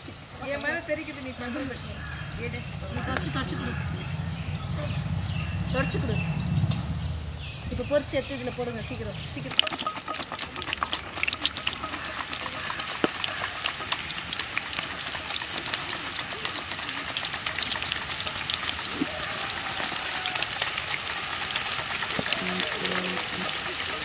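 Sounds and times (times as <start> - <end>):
banana slices frying in oil: 8.6 - 17.6, 18.4 - 24.0.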